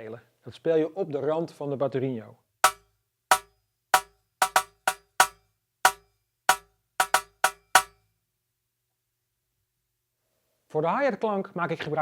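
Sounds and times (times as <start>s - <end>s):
drumstick clicking on rim: 2.6s - 7.9s.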